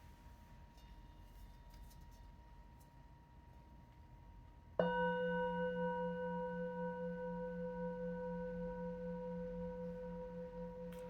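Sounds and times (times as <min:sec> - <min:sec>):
singing bowl ringing: 0:04.8 - 0:11.0.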